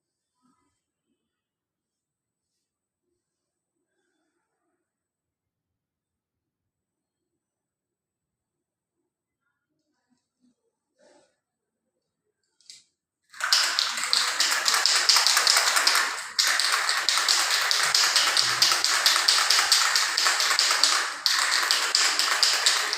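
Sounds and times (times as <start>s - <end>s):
aerosol can spraying: 13.4s - 22.9s.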